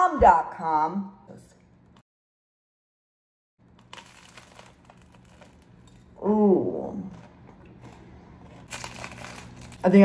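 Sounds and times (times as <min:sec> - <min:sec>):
crunchy chewing: 0:03.7 - 0:06.2, 0:07.1 - 0:09.8.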